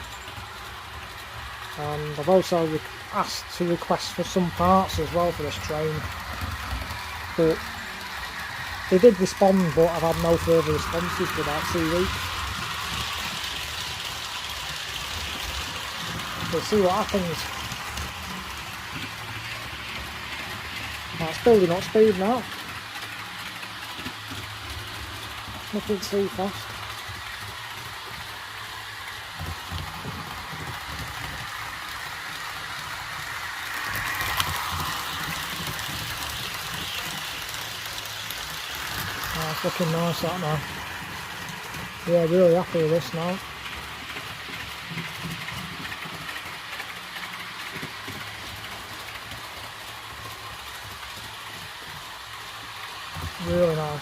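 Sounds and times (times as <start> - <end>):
model train hissing running sound: 0.0 - 54.0
wheels rumbling on track: 0.0 - 54.0.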